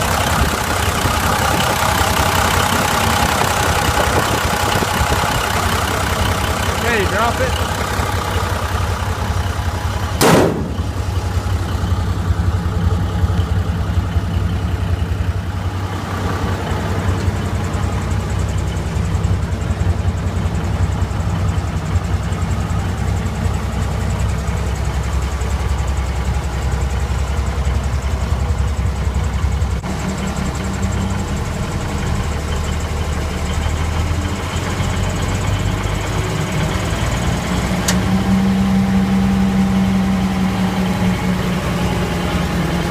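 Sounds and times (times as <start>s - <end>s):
diesel truck engine running: 0.0s - 42.9s
sharp knock: 10.2s - 11.0s.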